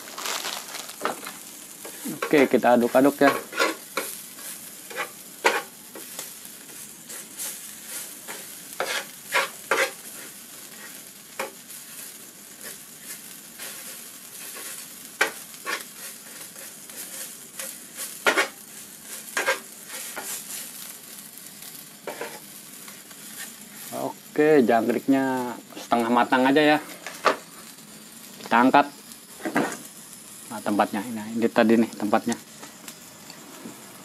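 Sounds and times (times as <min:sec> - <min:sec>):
insects sizzling on a griddle: 0:00.0 - 0:34.0
wooden spatula scraping a pan: 0:01.0 - 0:20.8, 0:22.0 - 0:24.0.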